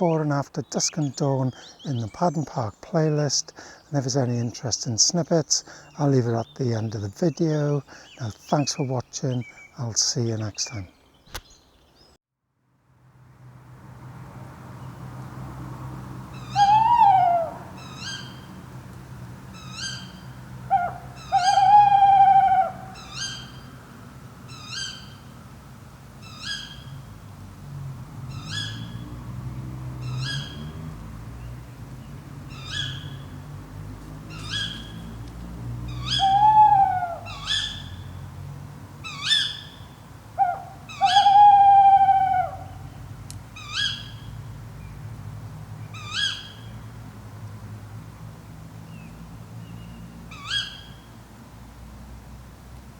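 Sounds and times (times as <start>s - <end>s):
owl hooting: 16.3s - 18.6s, 19.5s - 23.8s, 24.5s - 25.2s, 26.2s - 27.0s, 28.3s - 29.0s, 30.0s - 30.7s, 32.5s - 33.3s, 34.3s - 35.1s, 35.9s - 38.1s, 39.0s - 43.0s, 43.6s - 44.2s, 46.0s - 46.6s, 50.3s - 50.9s
short high calls: 16.4s - 18.5s, 19.6s - 23.8s, 35.9s - 38.1s, 39.1s - 43.0s.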